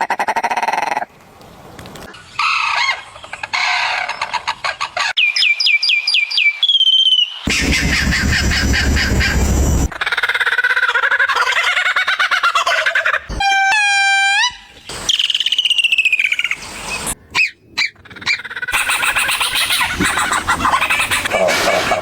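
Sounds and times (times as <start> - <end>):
rising bird call: 5.1 - 10.2
falling bird whistle: 5.2 - 8.0, 14.4 - 17.6
chattering bird trills: 17.4 - 22.0.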